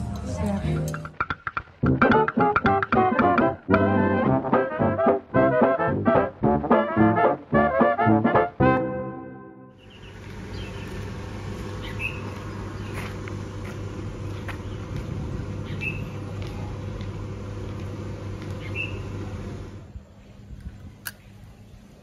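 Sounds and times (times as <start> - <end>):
bird chirping: 9.8 - 10.9, 11.8 - 13.0
steady low hum: 9.8 - 22.0.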